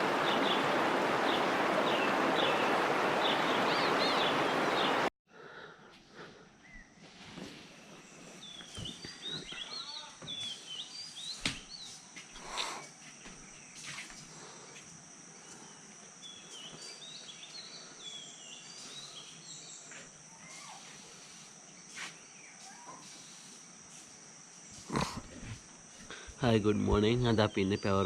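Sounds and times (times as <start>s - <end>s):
birds chirping: 0.0s - 5.1s, 7.9s - 13.9s, 26.0s - 28.0s
high insect drone: 0.0s - 5.1s, 7.6s - 28.0s.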